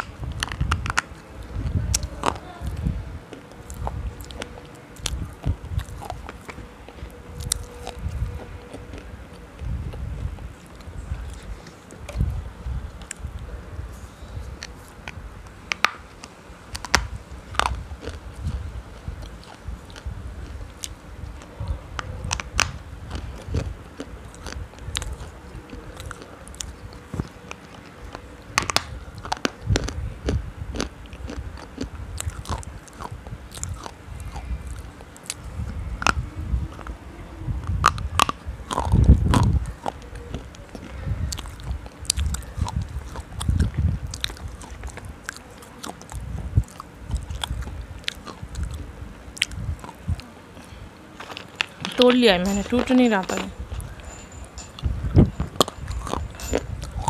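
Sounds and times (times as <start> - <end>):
biting and chewing crunches: 0.0 - 57.0
low microphone rumble: 0.0 - 57.0.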